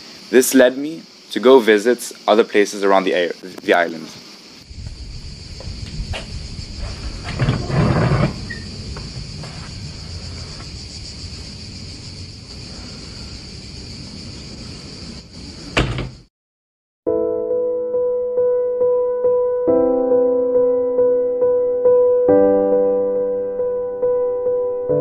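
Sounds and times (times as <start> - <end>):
insects droning: 0.0 - 16.3
door scraping open: 6.1 - 10.7, 15.6 - 16.3
soft piano music: 17.1 - 25.0.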